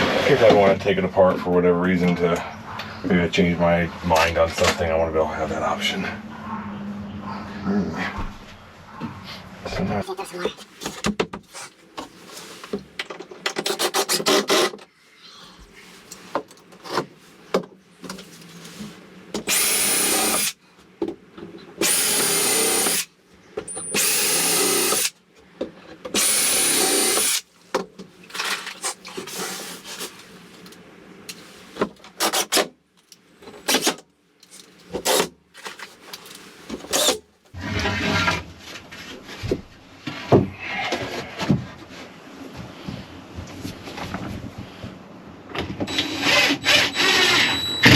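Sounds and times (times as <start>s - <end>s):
cordless drill driving screws: 19.5s - 20.6s, 21.8s - 23.1s, 23.9s - 25.1s, 26.2s - 27.4s, 36.9s - 37.2s.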